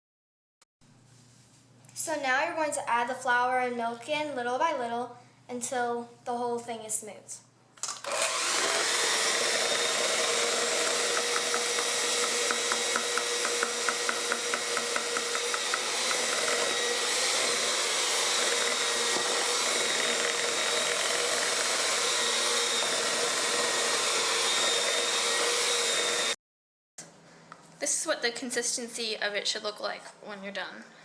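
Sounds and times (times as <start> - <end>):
electric mixer beating batter: 7.8 - 26.4.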